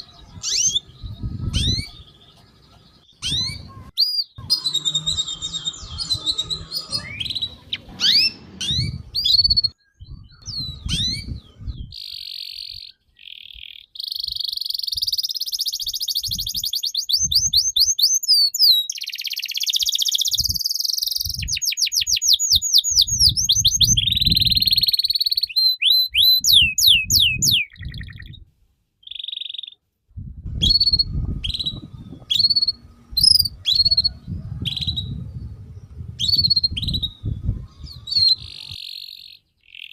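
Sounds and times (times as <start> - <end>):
songbird singing: 0.0 - 28.4, 29.0 - 29.8, 30.5 - 39.9
low thumps and rumbles: 30.2 - 33.6.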